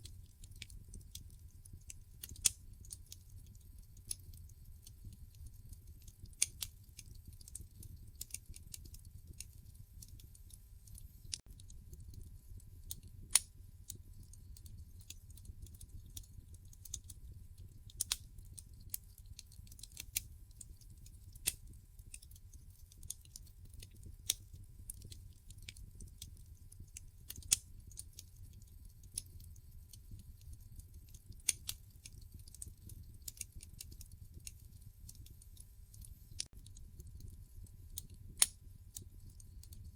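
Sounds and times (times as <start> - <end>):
low rumble of flames: 0.0 - 39.9
wood fire crackling: 0.0 - 39.9.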